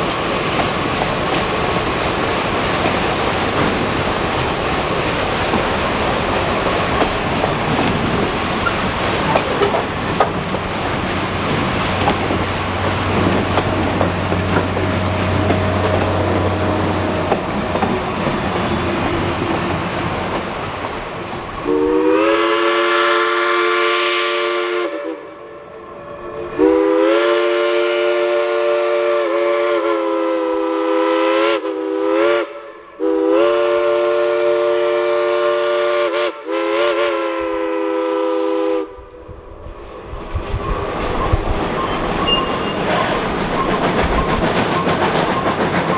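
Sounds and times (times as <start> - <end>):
steam locomotive chugging: 0.0 - 29.4, 39.4 - 45.9
chime whistle blowing: 40.5 - 45.9.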